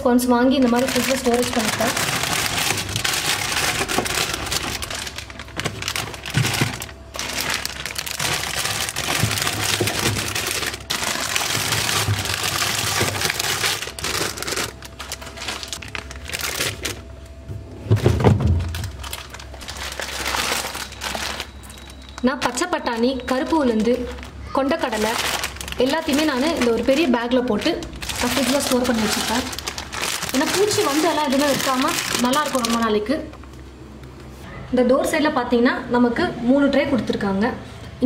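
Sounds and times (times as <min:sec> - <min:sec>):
plastic bags crinkling: 0:00.4 - 0:17.3, 0:18.0 - 0:33.3.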